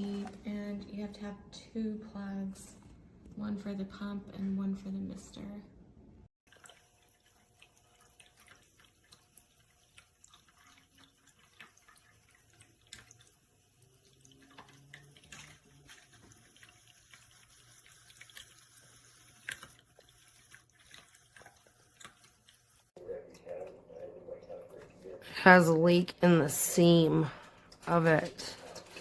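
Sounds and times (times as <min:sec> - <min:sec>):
fountain water trickling and dripping: 0:06.5 - 0:22.9.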